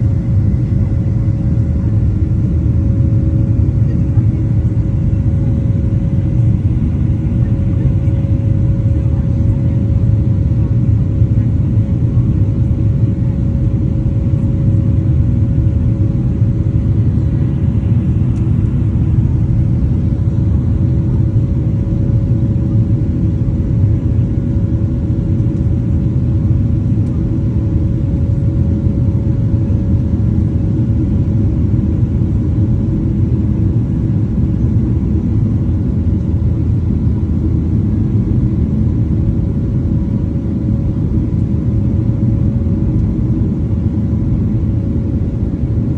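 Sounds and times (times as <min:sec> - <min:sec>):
airplane cabin hum: 0:00.0 - 0:45.9
jet engine rumble: 0:00.0 - 0:45.9.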